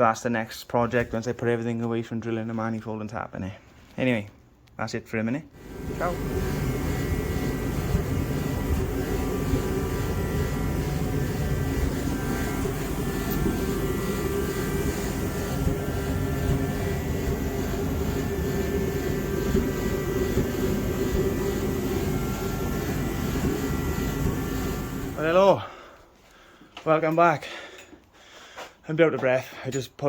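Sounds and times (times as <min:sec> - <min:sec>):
mechanical drone with held tones: 0:05.6 - 0:25.5.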